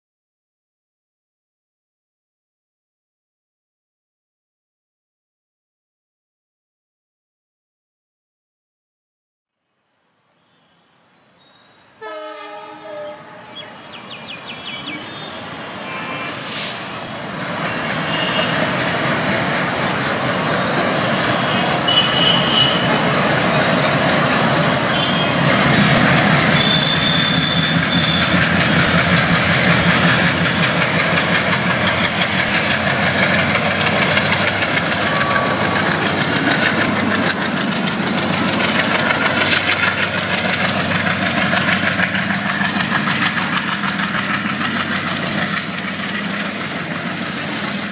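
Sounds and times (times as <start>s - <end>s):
diesel locomotive chugging: 11.4s - 47.9s
train horn: 11.5s - 13.8s, 14.8s - 16.9s, 17.7s - 18.8s, 21.3s - 23.2s, 24.8s - 25.7s, 26.4s - 28.8s, 34.8s - 36.3s
wheels clattering over rails: 17.2s - 47.9s.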